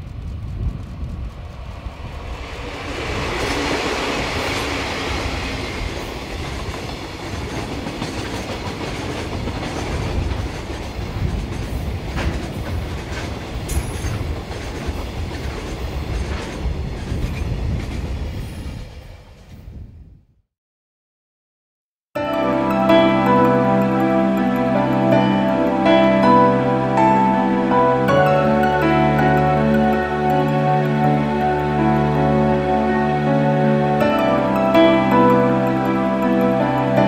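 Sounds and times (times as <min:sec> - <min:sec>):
diesel locomotive engines: 0:00.0 - 0:18.4
wheels clicking over rail joints: 0:06.2 - 0:18.0.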